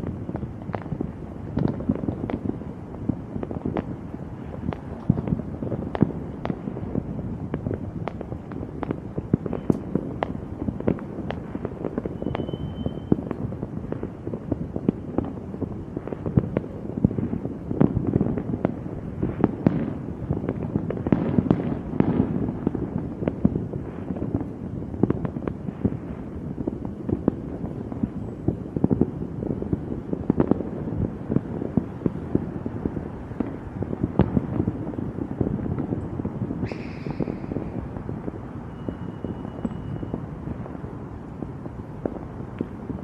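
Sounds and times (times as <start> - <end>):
fireworks bangs and crackles: 0.0 - 43.0
high firework whistle: 12.0 - 13.4, 36.6 - 40.6.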